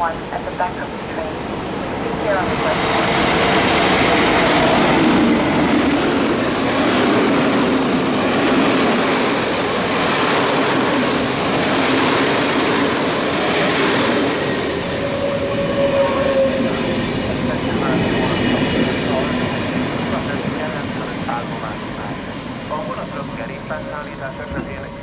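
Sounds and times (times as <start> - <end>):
train wheels on rails: 1.0 - 25.0
faint squealing tone: 22.1 - 25.0.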